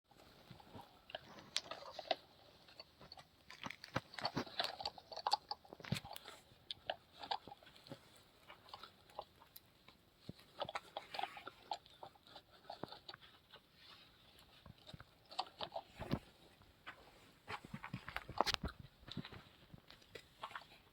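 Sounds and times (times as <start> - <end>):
small hard objects clattering: 3.4 - 4.9.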